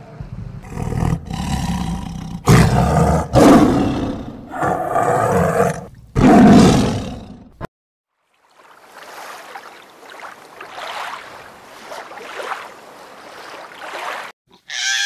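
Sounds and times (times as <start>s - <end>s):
big cat roaring: 0.6s - 7.6s.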